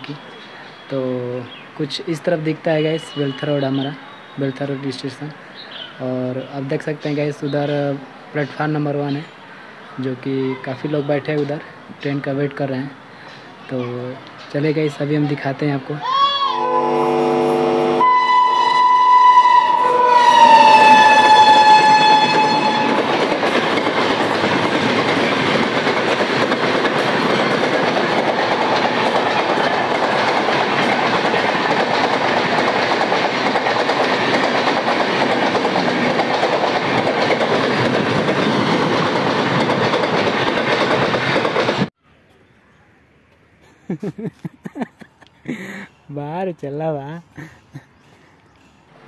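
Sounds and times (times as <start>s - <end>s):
train horn: 16.5s - 23.1s
train wheels rushing on rails: 19.4s - 41.9s.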